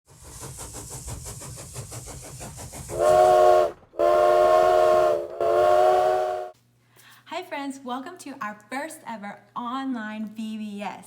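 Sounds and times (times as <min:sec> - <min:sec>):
steam locomotive chugging: 0:00.1 - 0:06.5.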